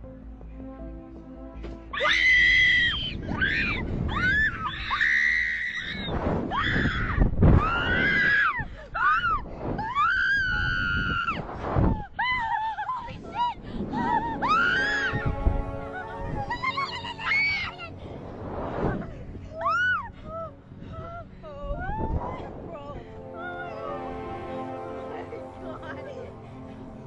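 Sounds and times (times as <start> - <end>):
background music: 0.0 - 5.9, 13.1 - 27.0
high-pitched human screams: 2.0 - 11.3.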